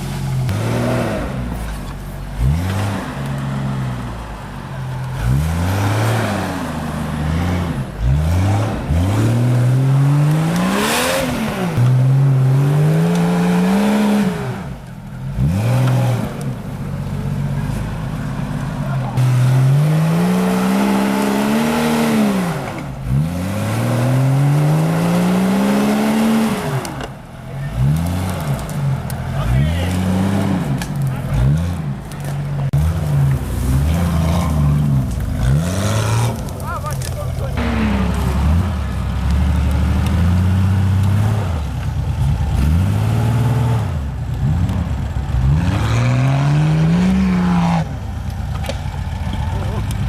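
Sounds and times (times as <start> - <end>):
engine revving hard: 0.5 - 1.6, 2.4 - 4.0, 5.2 - 14.7, 15.3 - 16.4, 19.2 - 27.0, 32.7 - 36.5, 37.6 - 41.7, 42.5 - 47.9.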